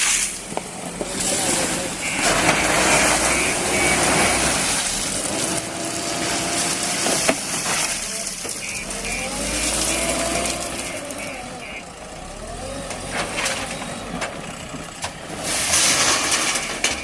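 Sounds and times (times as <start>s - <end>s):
backhoe diesel engine running: 0.0s - 17.0s
short beeps: 2.0s - 4.5s, 8.6s - 10.2s.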